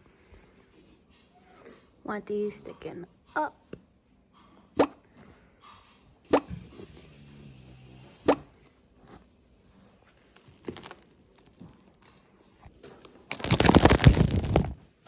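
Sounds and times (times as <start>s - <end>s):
soil scraping and rustling: 10.1s - 12.2s.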